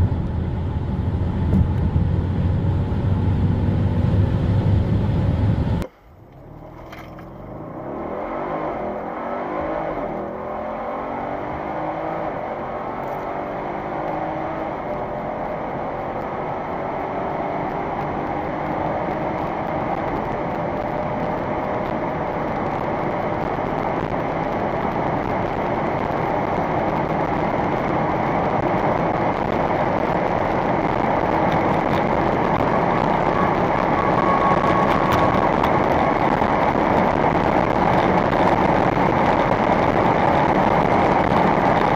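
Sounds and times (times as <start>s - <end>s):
car engine accelerating hard: 0.0s - 41.9s
road noise: 0.0s - 41.9s.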